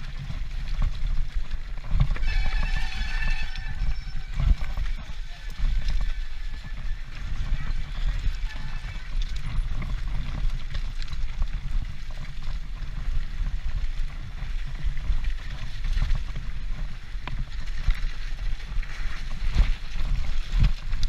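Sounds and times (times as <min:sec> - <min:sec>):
bike rattles and knocks: 0:00.0 - 0:21.0
wind buffeting microphone: 0:00.0 - 0:21.0.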